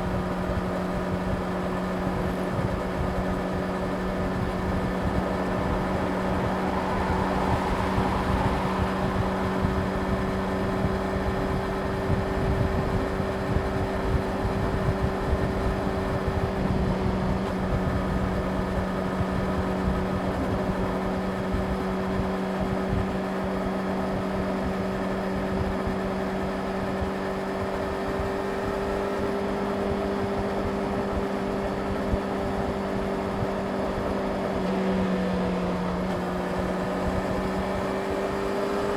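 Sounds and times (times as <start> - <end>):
wind noise: 0.0 - 23.2
motorcycle engine cruising: 0.0 - 38.9.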